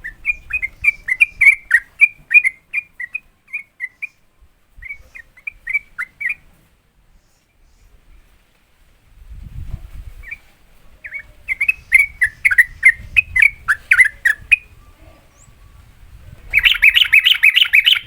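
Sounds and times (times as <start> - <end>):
bird singing whistled notes: 0.0 - 6.4, 10.2 - 18.0.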